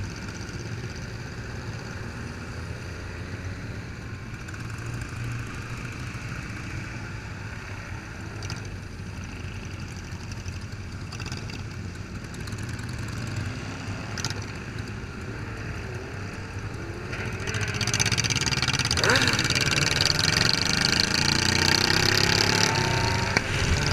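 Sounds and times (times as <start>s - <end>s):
motorcycle engines idling: 8.8s - 23.9s.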